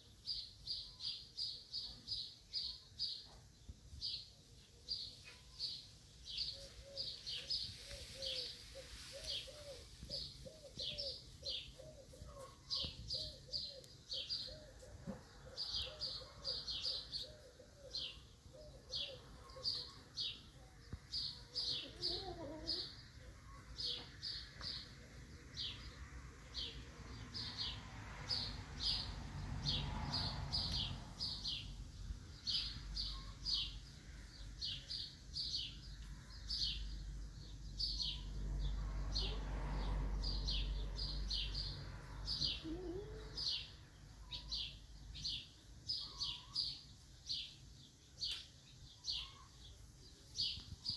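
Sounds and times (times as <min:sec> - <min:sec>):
small bird chirping: 0:04.9 - 0:24.9, 0:40.3 - 0:50.9.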